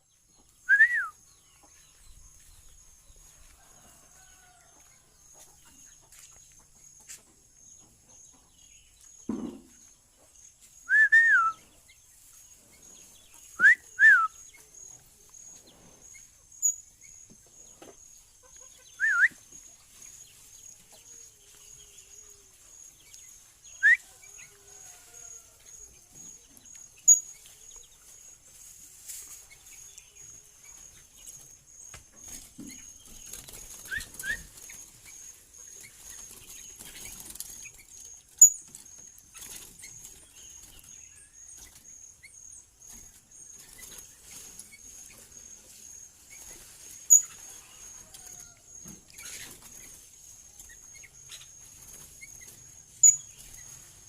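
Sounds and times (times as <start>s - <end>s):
bird whistled call notes: 0.6s - 1.2s, 10.8s - 11.6s, 13.6s - 14.4s, 19.0s - 19.4s, 23.8s - 24.1s, 33.9s - 34.5s.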